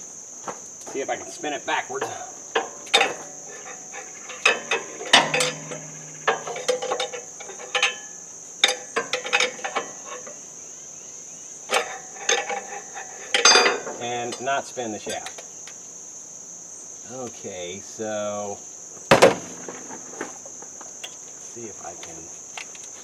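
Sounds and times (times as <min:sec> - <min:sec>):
crickets chirring: 0:00.0 - 0:23.0
metallic clanks of hand tools: 0:02.0 - 0:10.4, 0:11.7 - 0:15.5.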